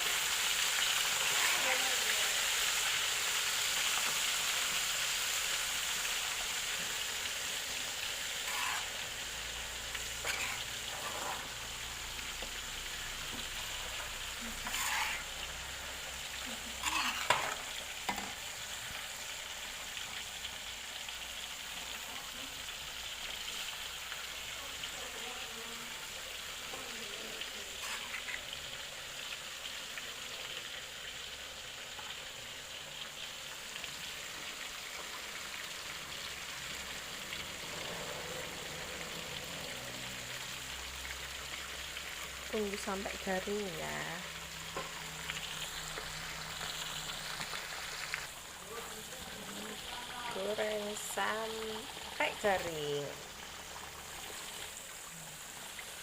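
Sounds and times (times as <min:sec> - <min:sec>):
fish sizzling in hot oil: 0:00.0 - 0:56.0
knocks and scrapes: 0:10.2 - 0:11.5.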